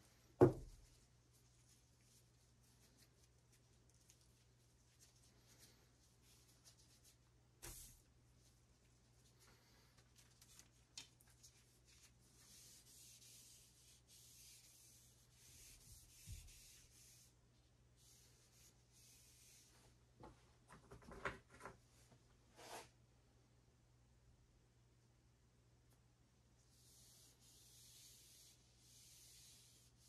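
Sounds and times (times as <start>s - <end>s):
rubbing on wooden arrow shaft: 9.2s - 17.4s, 26.7s - 30.0s.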